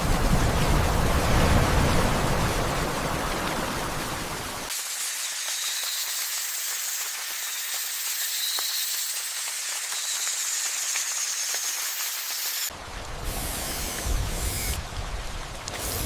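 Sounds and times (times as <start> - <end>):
rain hissing: 9.2 - 16.0.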